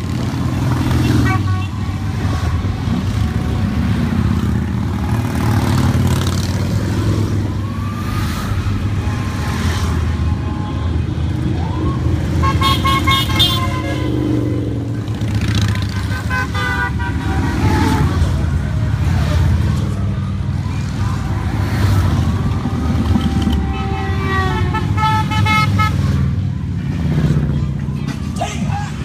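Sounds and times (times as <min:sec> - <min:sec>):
horn honking: 0:00.0 - 0:06.2, 0:12.2 - 0:18.6, 0:21.2 - 0:26.5
motorcycle engines rumbling: 0:00.0 - 0:29.0.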